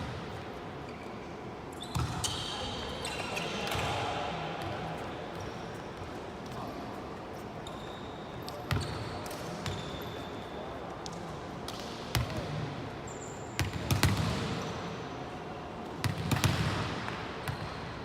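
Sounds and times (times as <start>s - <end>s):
shoe squeaks on court floor: 0.9s - 4.0s, 7.6s - 10.6s.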